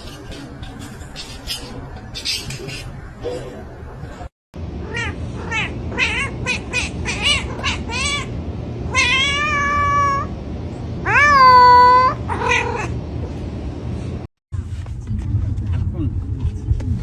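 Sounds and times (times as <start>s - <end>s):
cat meowing: 4.8s - 8.3s, 8.9s - 10.3s, 11.0s - 13.0s.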